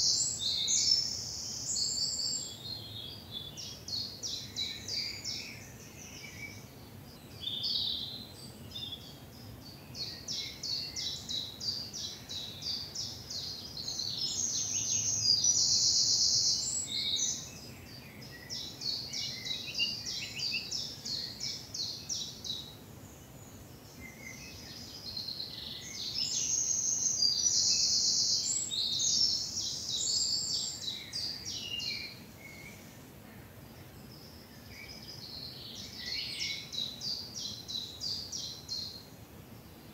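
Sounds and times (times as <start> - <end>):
bird's loud rapid song: 0.0 - 39.9
songbirds singing: 0.0 - 39.9.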